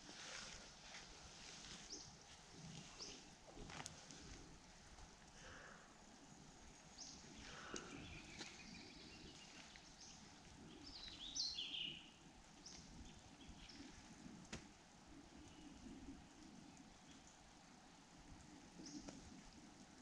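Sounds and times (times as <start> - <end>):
faint bird chirps: 5.4 - 14.4, 15.1 - 17.7.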